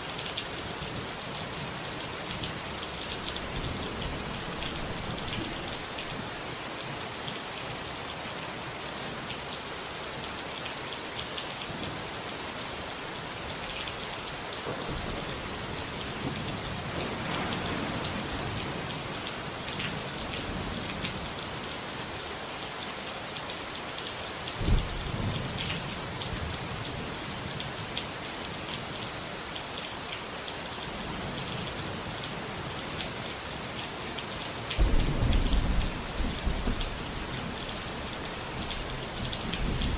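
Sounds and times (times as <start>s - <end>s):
heavy rain falling: 0.0s - 39.9s
thunderclap rolling: 14.8s - 20.9s, 34.8s - 39.9s
distant thunder rumble: 14.8s - 21.0s, 34.8s - 39.9s.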